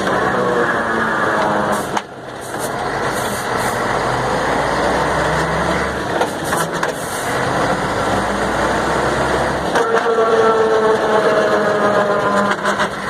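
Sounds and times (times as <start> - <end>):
truck running in gear: 0.0 - 13.0.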